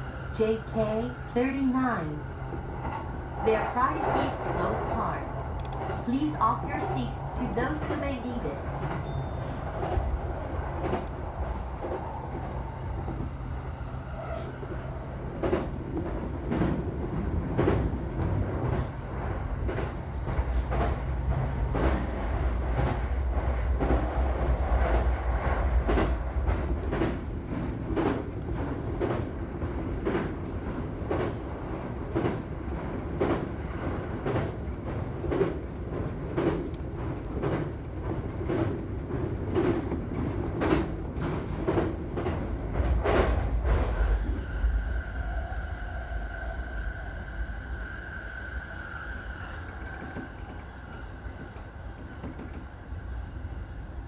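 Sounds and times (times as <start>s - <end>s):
electric train rumble: 0.0s - 54.0s.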